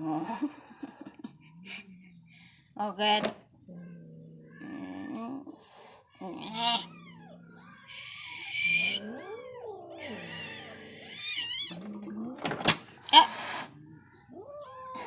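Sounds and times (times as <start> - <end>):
cat hissing: 5.6 - 11.8, 12.7 - 13.8
cats meowing and yowling: 6.2 - 12.3, 13.0 - 15.0.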